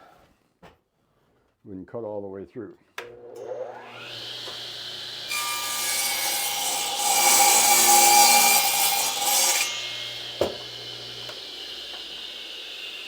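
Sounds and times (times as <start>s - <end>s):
saw blade cutting wood: 3.4s - 13.0s
radial arm saw motor humming: 3.7s - 13.0s.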